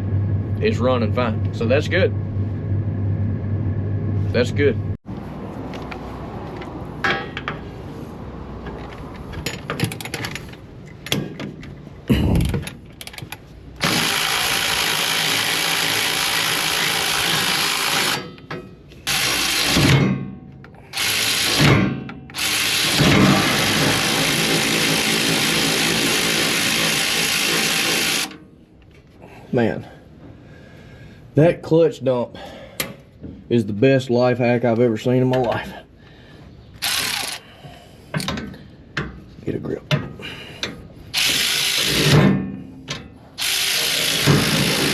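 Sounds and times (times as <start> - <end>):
power tool running: 13.8 - 18.3, 19.0 - 20.0, 21.0 - 28.4, 36.8 - 37.4, 41.1 - 42.3, 43.4 - 44.9.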